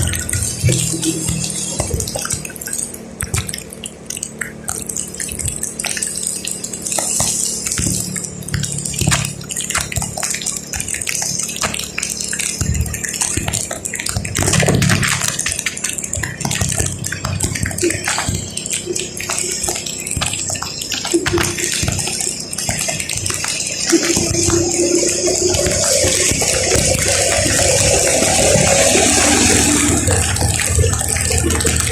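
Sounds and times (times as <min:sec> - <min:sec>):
raindrops clicking on vehicle: 0:00.0 - 0:31.9
steady low hum: 0:12.4 - 0:31.9
tyres hissing on wet road: 0:23.2 - 0:31.9.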